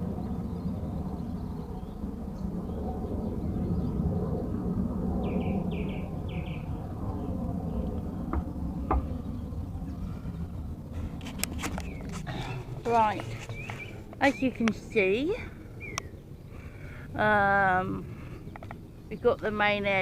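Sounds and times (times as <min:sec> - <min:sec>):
low rumbling noise: 0:00.0 - 0:20.0
small bird chirping: 0:05.2 - 0:06.8, 0:11.7 - 0:15.1, 0:15.8 - 0:16.4.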